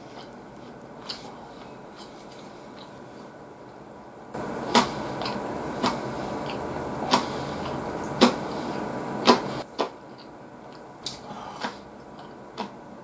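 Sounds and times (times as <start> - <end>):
person chewing food: 0.0 - 3.8, 4.4 - 13.0
steady hiss: 4.2 - 9.7
wet mouth clicks: 4.7 - 8.4.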